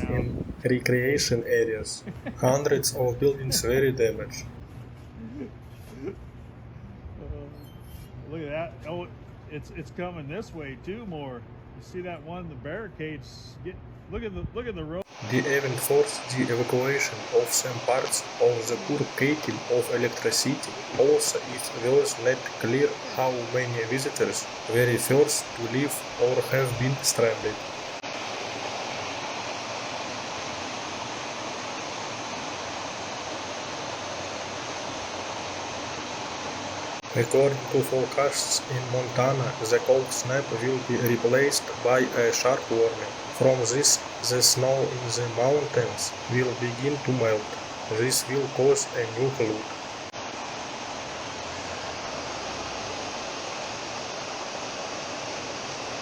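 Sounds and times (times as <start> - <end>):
floodwater rushing: 15.1 - 28.0, 36.9 - 50.1.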